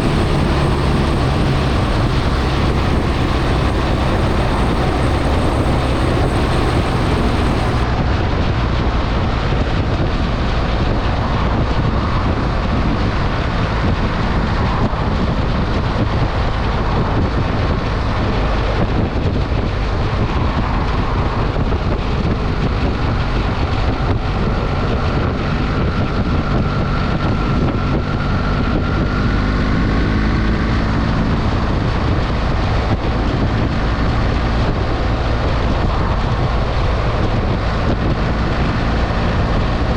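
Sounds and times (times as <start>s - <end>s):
motorcycle engine running: 0.0s - 7.8s
wind rushing over microphone: 0.0s - 39.9s.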